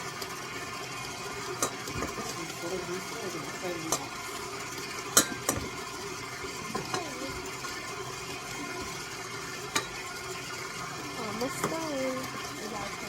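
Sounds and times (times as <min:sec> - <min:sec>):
utensils tapping a bowl: 0:05.1 - 0:05.8, 0:06.7 - 0:07.2, 0:09.7 - 0:10.0.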